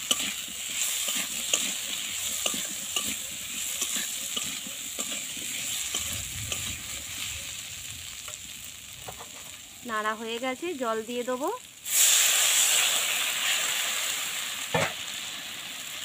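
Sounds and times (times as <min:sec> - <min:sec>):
metal spatula scraping pan: 0:00.0 - 0:07.6, 0:09.0 - 0:09.6
vegetables sizzling in oil: 0:00.0 - 0:16.0.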